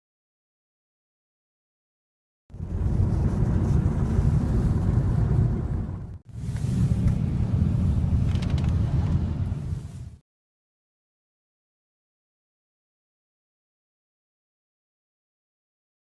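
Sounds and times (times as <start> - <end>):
loud low rumbling: 2.5 - 10.2.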